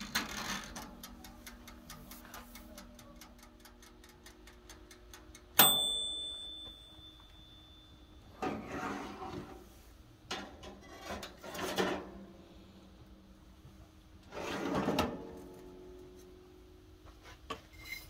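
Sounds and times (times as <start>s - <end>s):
wind-up timer ticking fast: 0.0s - 5.7s
timer bell ding: 5.6s - 8.3s
oven door opening with metal clatter: 10.3s - 12.2s, 14.3s - 15.6s.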